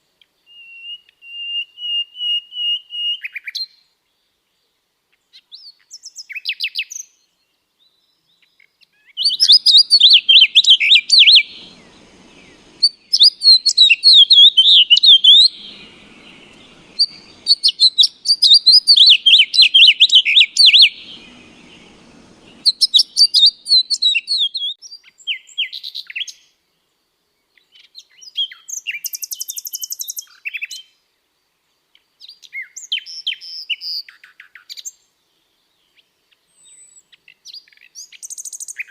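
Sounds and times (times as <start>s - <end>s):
birds chirping and twittering: 3.2s - 30.8s.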